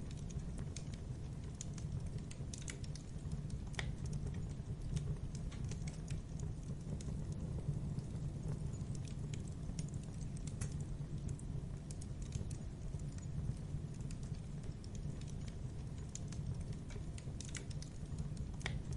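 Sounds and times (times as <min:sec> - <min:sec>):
burning wood crackling and popping: 0:00.0 - 0:18.9
wood fire rumbling: 0:00.0 - 0:18.9.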